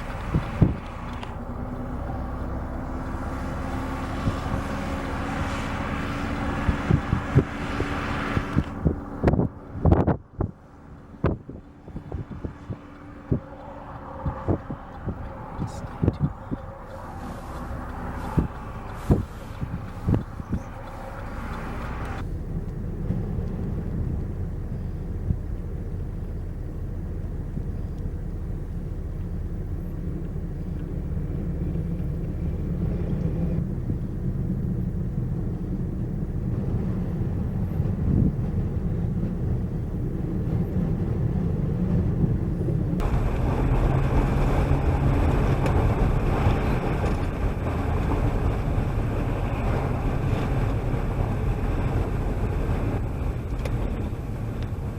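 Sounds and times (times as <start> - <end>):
engine rumbling: 0.0 - 54.9
loud bright engine noise: 43.0 - 53.1.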